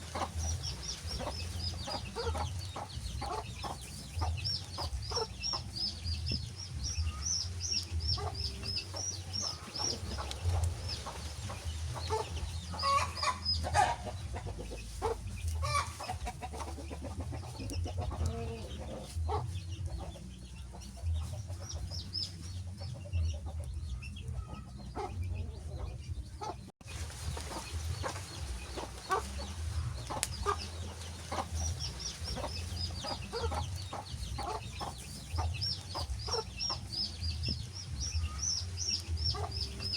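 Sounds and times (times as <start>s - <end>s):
wood fire crackling: 3.8s - 12.6s, 26.9s - 34.4s.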